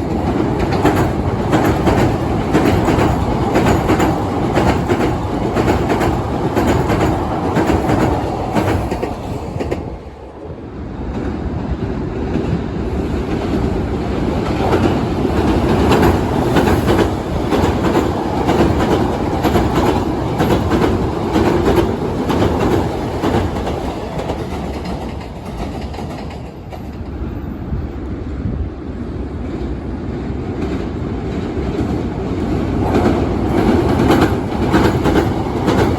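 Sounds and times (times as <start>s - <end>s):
clickety-clack of train wheels: 0.0s - 10.3s, 11.0s - 27.6s, 29.5s - 35.9s
electric train rumbling over bridge: 0.0s - 35.9s.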